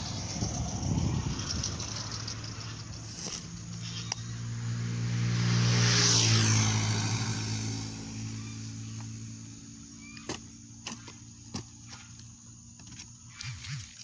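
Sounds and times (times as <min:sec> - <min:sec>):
motor vehicle driving past: 0:00.0 - 0:10.8.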